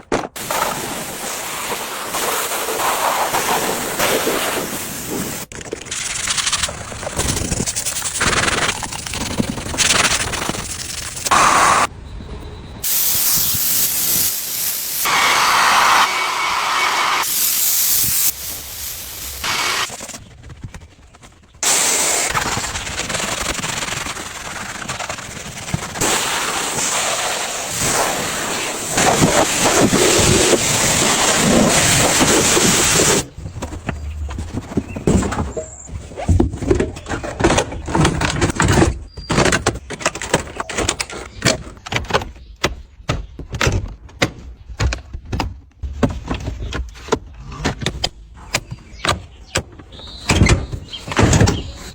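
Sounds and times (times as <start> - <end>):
cleaning tool hissing: 11.3 - 11.9, 12.8 - 20.1, 21.6 - 22.4
clicks knocks and scraping: 33.4 - 51.9.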